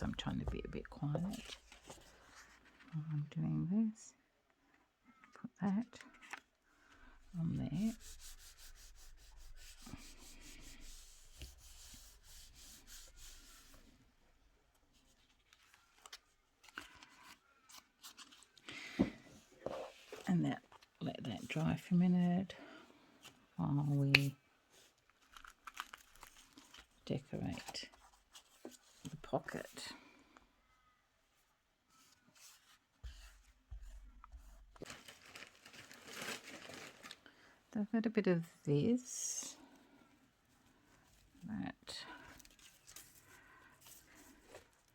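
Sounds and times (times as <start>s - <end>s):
paper rustling and crinkling: 0.2s - 3.0s, 6.0s - 6.5s, 14.9s - 18.6s, 24.2s - 29.3s, 31.9s - 37.3s, 42.2s - 44.9s
paper being rubbed by hand: 7.7s - 13.9s
paper handling: 14.9s - 18.6s, 25.1s - 29.2s.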